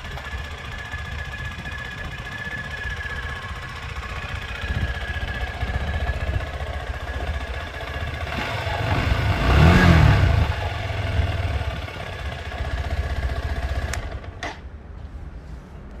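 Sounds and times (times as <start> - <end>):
motorcycle exhaust idling: 0.0 - 14.4.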